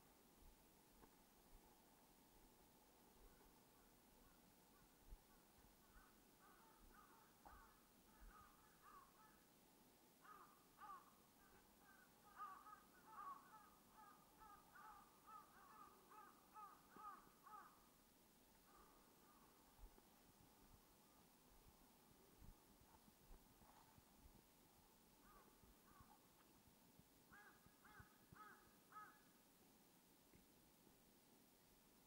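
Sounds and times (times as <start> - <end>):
soft footsteps on path: 0.3 - 3.7, 18.5 - 28.6.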